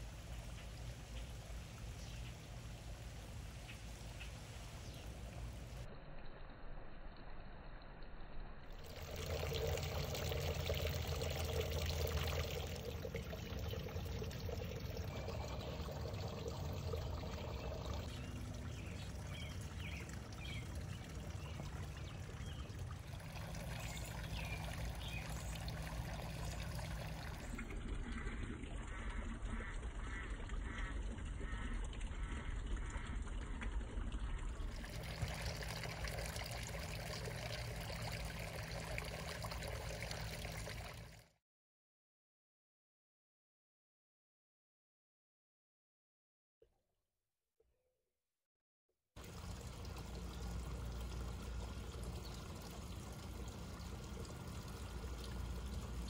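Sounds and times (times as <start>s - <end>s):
small birds chirping: 15.0s - 27.5s.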